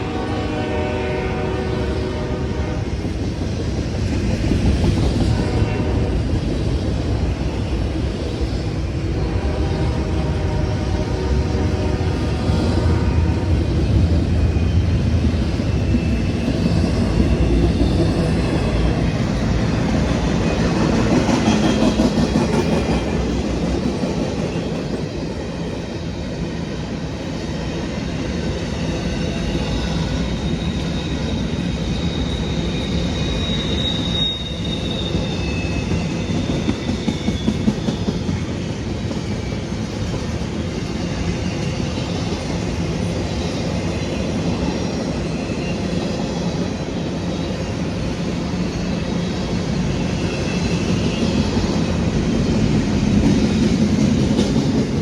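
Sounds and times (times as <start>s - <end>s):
freight train wheels rumbling on rail: 0.0s - 55.0s
high wheel squeal: 29.0s - 38.3s.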